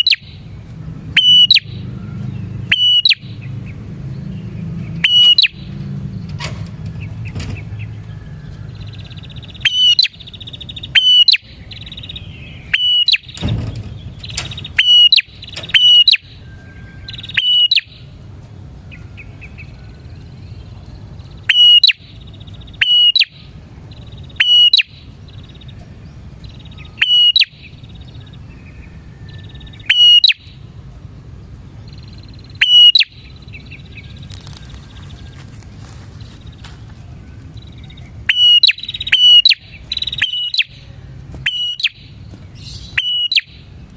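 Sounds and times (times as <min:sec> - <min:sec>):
bird calling sharp short notes: 0:02.7 - 0:03.3, 0:05.0 - 0:05.6.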